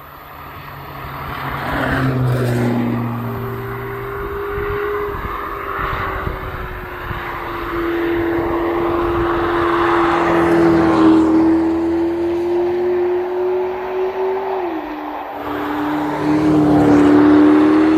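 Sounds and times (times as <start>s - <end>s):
car engine running: 1.2s - 17.9s
tyre and wind noise: 1.7s - 13.2s.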